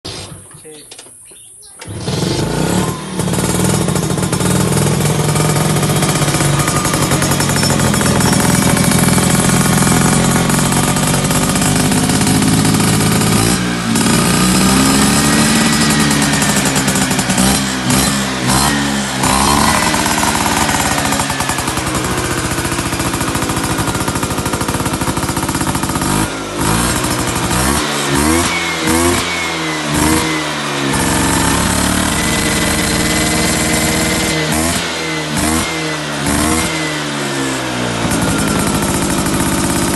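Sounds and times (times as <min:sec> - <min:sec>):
scooter engine revving: 0:00.1 - 0:00.8, 0:01.6 - 0:39.9.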